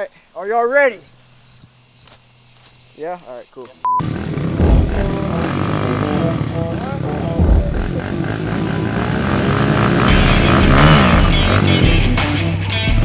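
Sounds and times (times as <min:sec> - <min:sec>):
dirt bike engines revving: 0:00.0 - 0:13.0
music: 0:09.9 - 0:13.0.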